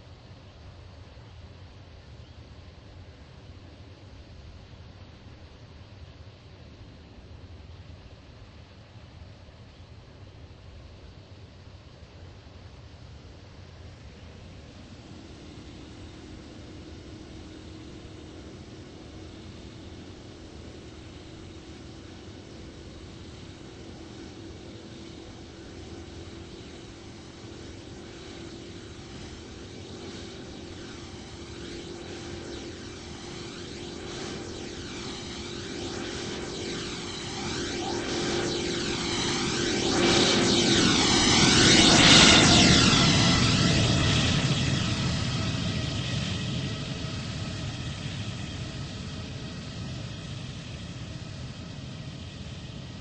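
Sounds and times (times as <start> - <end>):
jet engines roaring: 13.2 - 53.0
sweeping phasing hiss: 14.0 - 41.2.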